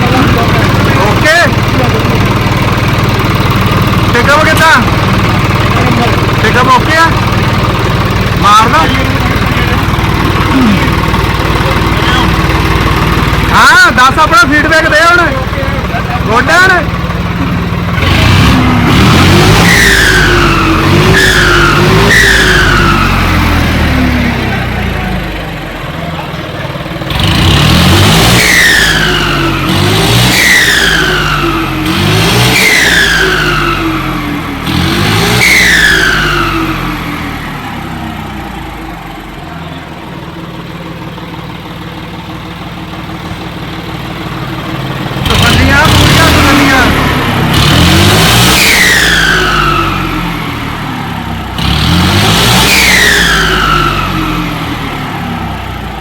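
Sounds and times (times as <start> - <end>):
diesel engine idling: 0.0 - 56.0
diesel engine revving: 0.0 - 56.0
turbo whistle: 19.5 - 23.3, 32.6 - 33.9, 48.5 - 50.2.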